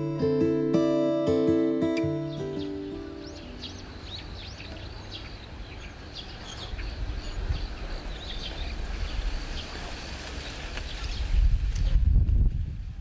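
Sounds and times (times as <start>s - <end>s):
small birds chirping: 1.2s - 11.4s.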